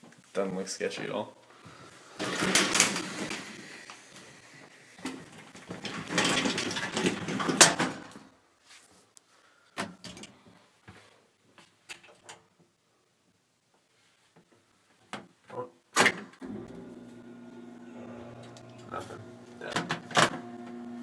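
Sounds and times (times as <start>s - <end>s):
door scraping: 2.1s - 8.2s
door clacking shut: 2.2s - 3.5s.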